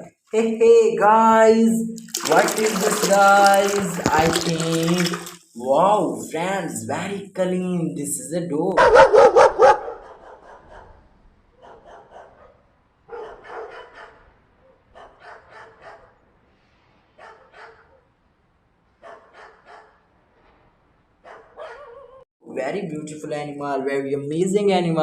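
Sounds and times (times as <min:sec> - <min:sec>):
dog barking: 0:08.8 - 0:16.2, 0:17.2 - 0:18.1, 0:19.0 - 0:20.1, 0:21.2 - 0:22.2.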